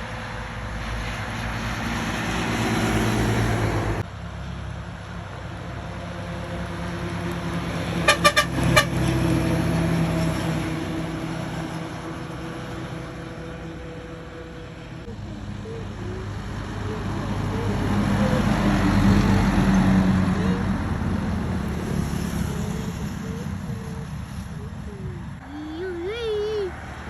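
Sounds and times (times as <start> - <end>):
truck engine running: 0.0 - 27.0
horn toots: 8.0 - 9.4.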